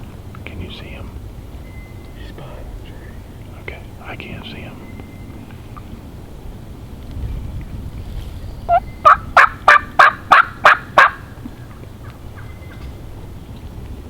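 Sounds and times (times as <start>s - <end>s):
turkey yelps: 8.7s - 12.9s.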